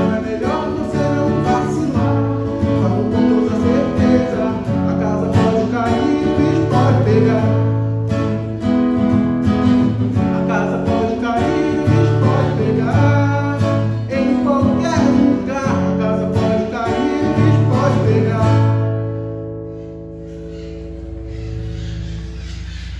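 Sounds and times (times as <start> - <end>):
person singing: 0.0 - 8.4, 10.0 - 19.0
acoustic guitar strumming: 0.0 - 22.9.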